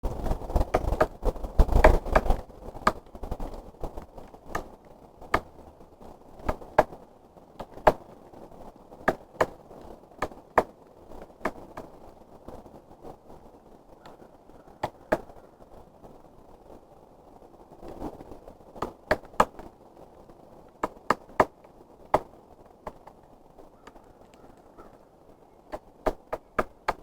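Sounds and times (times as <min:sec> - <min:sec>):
woodpecker pecking wood: 0:00.5 - 0:03.6, 0:04.2 - 0:05.8, 0:06.4 - 0:07.0, 0:07.6 - 0:08.2, 0:09.0 - 0:12.0, 0:14.0 - 0:15.5, 0:18.8 - 0:19.7, 0:20.7 - 0:23.2, 0:25.6 - 0:27.0.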